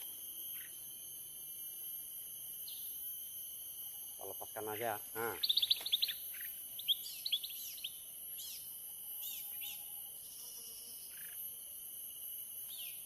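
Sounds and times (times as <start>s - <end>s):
steady high-pitched hiss: 0.0s - 13.0s
small birds chirping: 5.2s - 9.8s.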